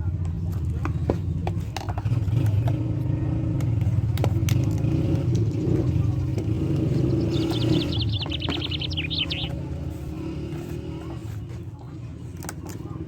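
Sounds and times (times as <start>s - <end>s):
low engine-like rumble: 0.0s - 13.0s
bird chirping: 5.4s - 9.9s.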